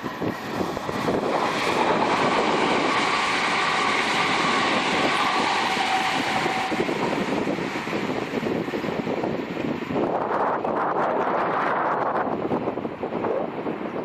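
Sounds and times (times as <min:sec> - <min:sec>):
train wheel and rail noise: 0:00.0 - 0:14.0.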